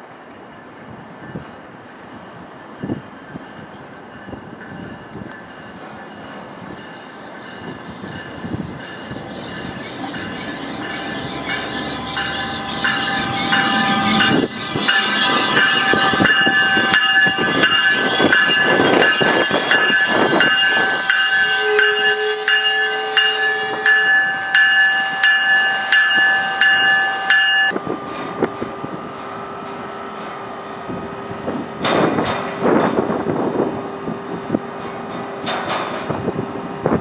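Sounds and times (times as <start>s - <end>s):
train rolling into station: 0.0s - 37.0s
high squeal of steady tones: 6.8s - 29.8s.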